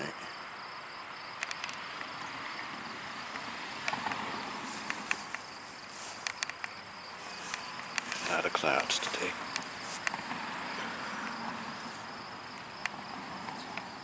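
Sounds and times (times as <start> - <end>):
insects chirping: 0.0 - 14.0
soft breeze hiss: 0.0 - 14.0
sharp clicks: 1.4 - 2.1, 3.3 - 5.5, 6.2 - 6.8, 7.4 - 10.3, 12.8 - 13.9.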